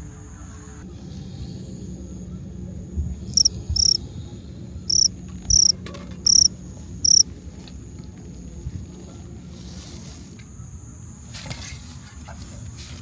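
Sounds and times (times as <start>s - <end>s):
cricket chirping: 3.3s - 4.0s, 4.9s - 5.7s, 6.3s - 7.3s.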